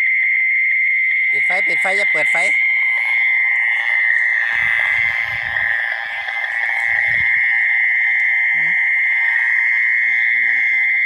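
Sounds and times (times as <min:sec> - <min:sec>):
frogs and insects chorus: 0:00.0 - 0:11.0
wind rumbling on microphone: 0:03.7 - 0:07.7.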